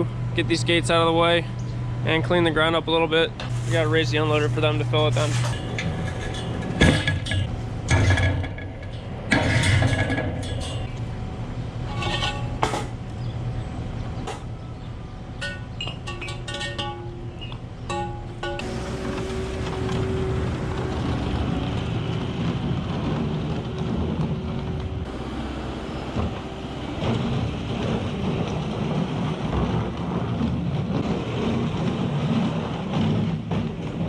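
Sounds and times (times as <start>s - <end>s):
vehicle engine running: 10.3s - 31.2s.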